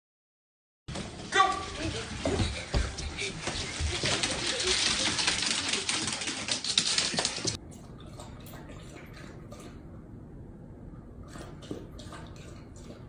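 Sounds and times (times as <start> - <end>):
dog lapping water from bowl: 4.3 - 10.1, 11.2 - 13.0.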